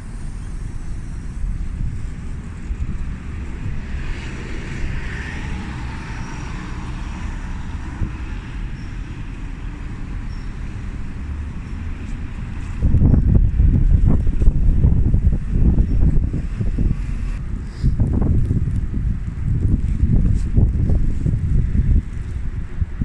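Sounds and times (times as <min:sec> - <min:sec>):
tyre hiss of passing vehicle: 0:00.0 - 0:13.2, 0:15.7 - 0:18.2
traffic rumble: 0:00.0 - 0:23.0.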